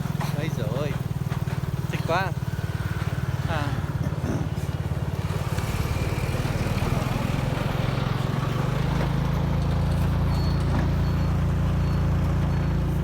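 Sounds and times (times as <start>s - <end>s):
motorbike engine running: 0.0s - 13.0s
wind and road noise: 0.0s - 13.0s.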